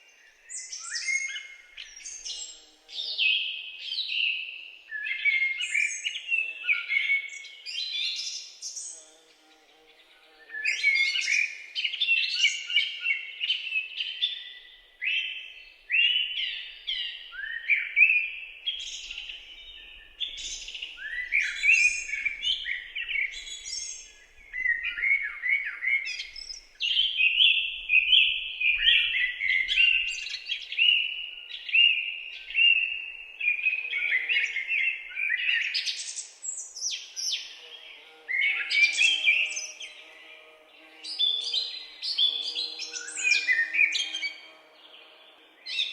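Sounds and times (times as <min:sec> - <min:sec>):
songbirds singing and chirping: 0:00.0 - 0:45.9.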